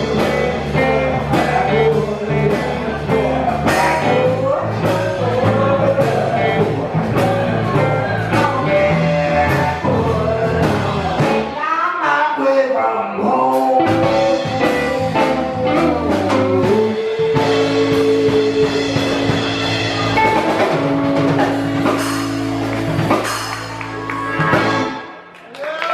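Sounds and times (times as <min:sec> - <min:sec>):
blues-rock band playing: 0:00.0 - 0:11.6, 0:13.2 - 0:25.3
person singing: 0:00.0 - 0:25.2.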